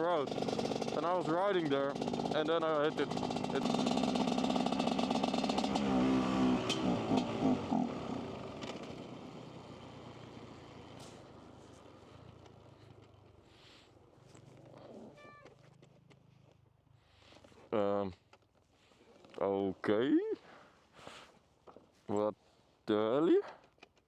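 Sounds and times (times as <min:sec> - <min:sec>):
dirt bike engine revving unevenly: 0:00.0 - 0:13.0.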